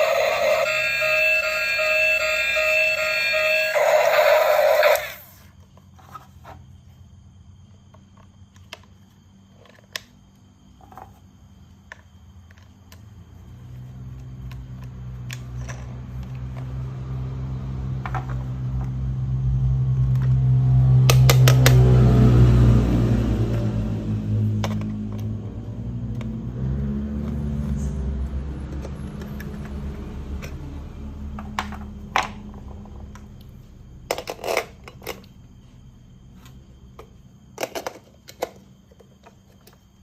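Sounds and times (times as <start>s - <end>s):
toy train electronic beeping tune: 0.0s - 5.4s.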